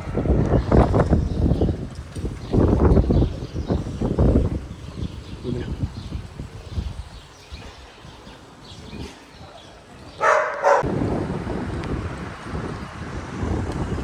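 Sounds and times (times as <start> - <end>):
wind rumble on microphone: 0.0 - 14.0
dog barking: 10.2 - 10.9.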